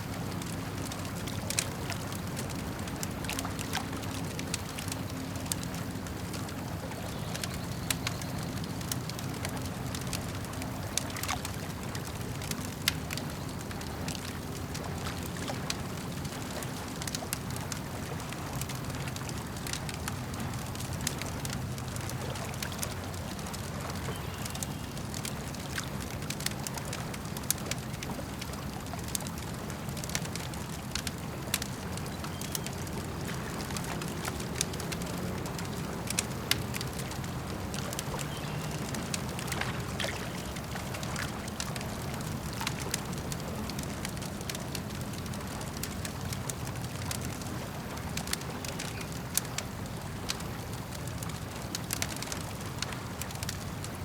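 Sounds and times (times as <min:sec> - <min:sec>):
campfire crackling: 0:00.0 - 0:54.0
lake water lapping: 0:00.0 - 0:54.0.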